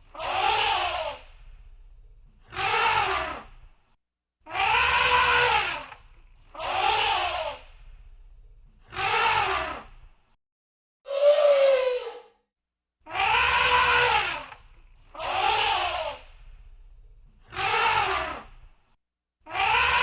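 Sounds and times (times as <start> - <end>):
elephant trumpeting: 4.6 - 5.9, 13.2 - 14.5.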